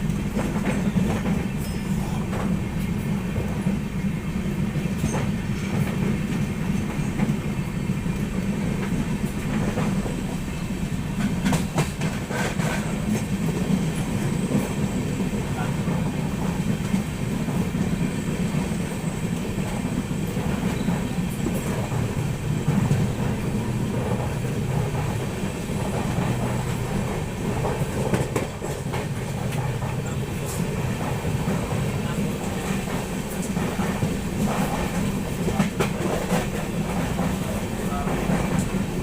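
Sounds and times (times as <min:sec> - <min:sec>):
train rumbling on track: 0:00.0 - 0:39.0
wheels clacking over rail joints: 0:11.1 - 0:39.0.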